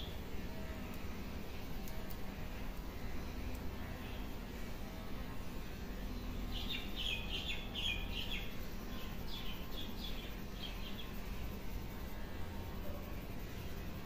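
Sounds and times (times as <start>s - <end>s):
steady low background noise: 0.0s - 14.0s
bird chirping: 6.5s - 11.2s.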